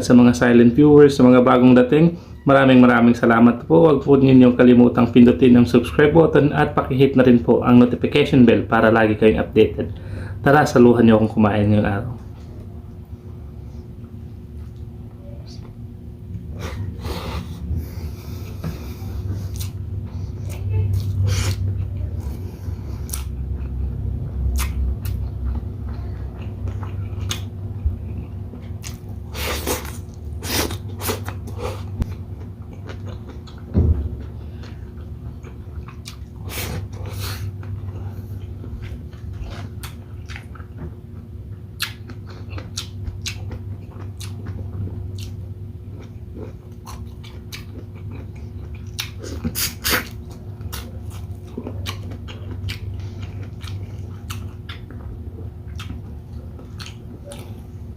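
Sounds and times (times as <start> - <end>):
low hum: 0.0 - 49.6
person chewing food: 15.5 - 57.9
mouth smacks and wet clicks: 24.6 - 25.2, 41.8 - 44.6.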